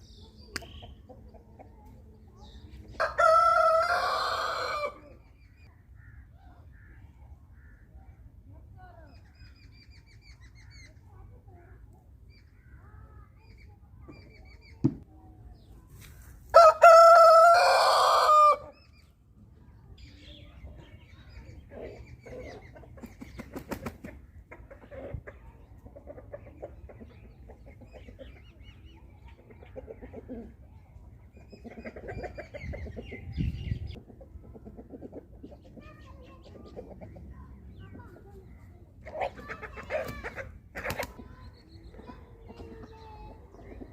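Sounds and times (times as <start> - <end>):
chickens clucking and chirping: 0.0 - 43.9
rooster crowing: 16.6 - 18.6.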